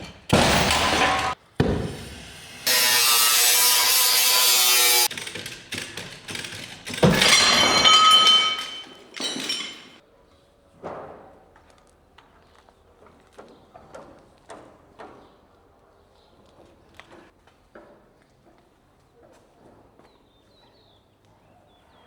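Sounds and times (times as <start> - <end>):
pitched ringing tool burst: 0.3 - 1.4, 7.0 - 10.0
sharp knocks: 0.3 - 2.0
power tool running: 0.3 - 7.0.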